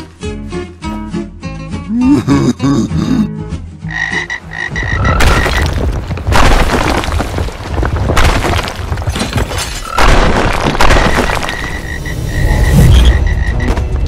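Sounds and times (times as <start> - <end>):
cartoon croaking racket: 3.9 - 5.3
crashing breaking noise: 5.1 - 14.0.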